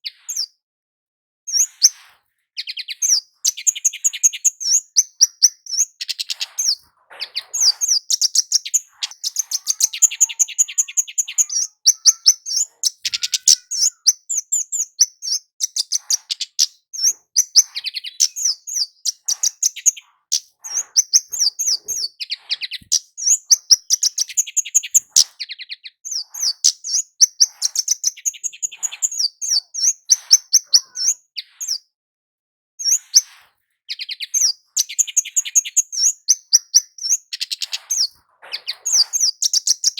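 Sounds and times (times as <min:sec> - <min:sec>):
bird calling high sharp chips: 0:02.6 - 0:31.2.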